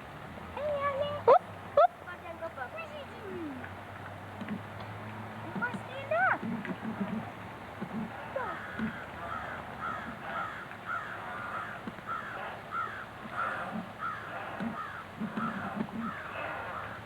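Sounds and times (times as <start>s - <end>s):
bird calling: 7.9s - 17.0s.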